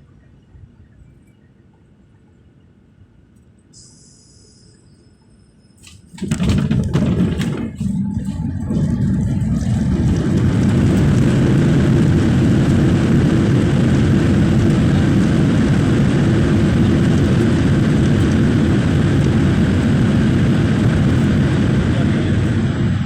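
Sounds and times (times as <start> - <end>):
airliner cabin engine rumble: 5.8 - 23.0.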